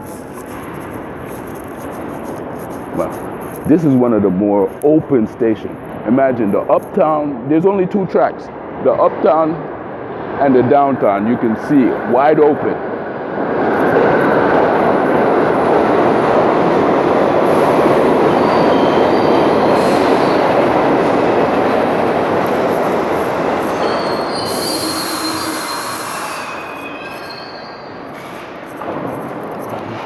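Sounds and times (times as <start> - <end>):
subway train wheels rumbling: 0.0 - 30.0
metallic wheel squeal: 17.5 - 20.5, 23.6 - 28.8.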